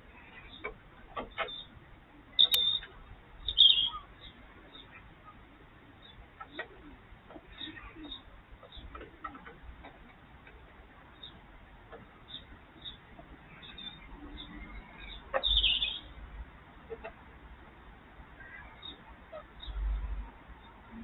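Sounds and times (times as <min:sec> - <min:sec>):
birds chirping: 0:00.0 - 0:17.2, 0:18.4 - 0:21.0.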